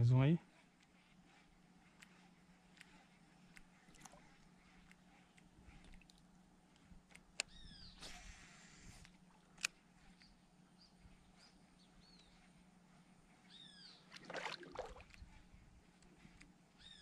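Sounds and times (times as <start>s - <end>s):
small bird chirps: 7.4s - 8.1s, 13.5s - 14.2s, 16.8s - 17.0s.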